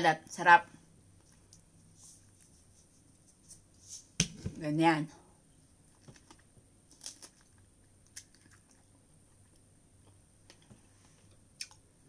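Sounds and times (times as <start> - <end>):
faint chewing of strawberry: 5.9 - 11.9
soft mouth clicks: 11.6 - 11.8.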